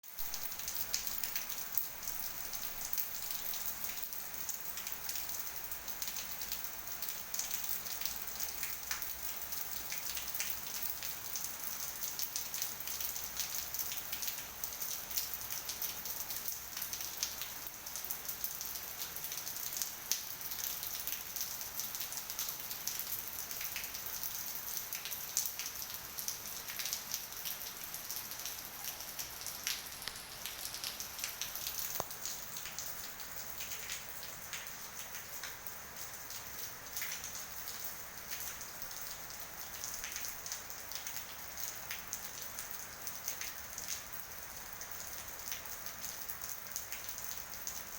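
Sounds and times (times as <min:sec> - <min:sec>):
steady rain falling: 0:00.0 - 0:47.9
raindrops ticking: 0:24.8 - 0:42.5.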